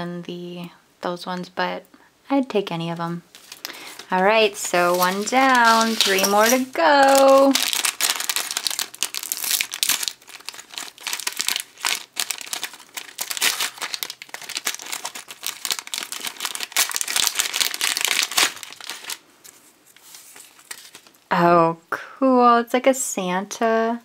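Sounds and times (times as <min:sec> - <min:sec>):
plastic packet crinkling: 0:03.3 - 0:21.2.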